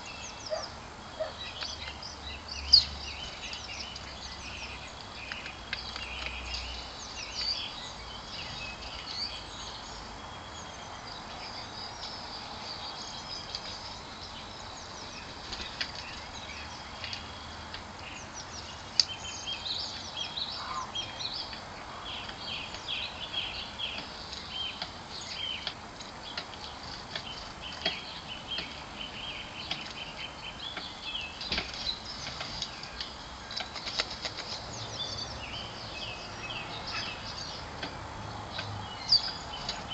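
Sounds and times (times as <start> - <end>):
garden birds chirping: 0.0 - 39.9
steady outdoor hum: 0.0 - 39.9.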